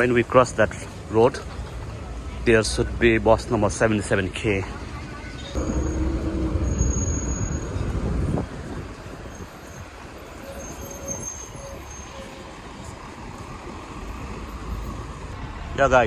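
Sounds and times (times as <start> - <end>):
traffic hum: 0.0 - 16.0
vehicle passing close: 5.6 - 9.3.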